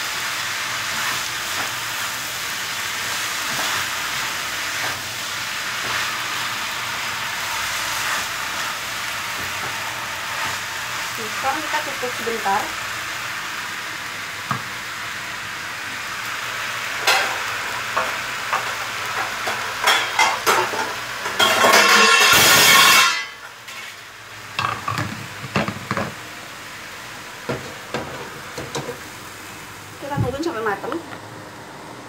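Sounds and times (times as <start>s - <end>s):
food sizzling in a wok: 0.0s - 32.0s
lid and utensils clinking: 19.8s - 23.3s.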